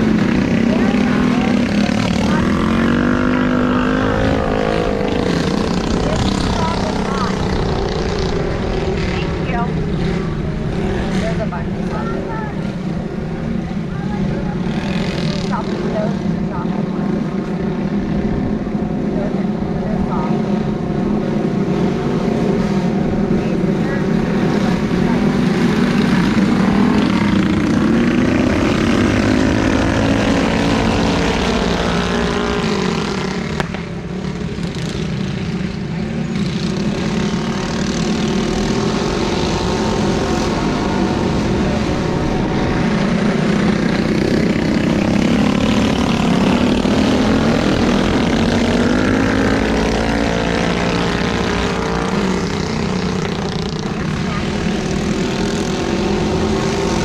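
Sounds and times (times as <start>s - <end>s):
minibike engines racing: 0.0s - 57.0s.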